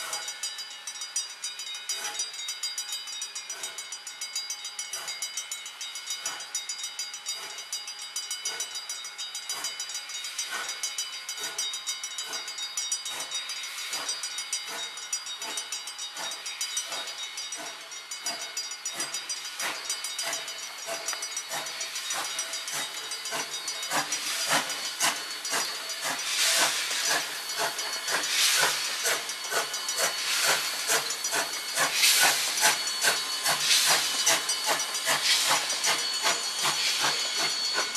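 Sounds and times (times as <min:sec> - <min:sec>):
hissing steam: 0:00.0 - 0:00.6, 0:04.8 - 0:05.3, 0:06.1 - 0:06.7, 0:09.5 - 0:37.9
steam locomotive chuffing: 0:00.0 - 0:37.9.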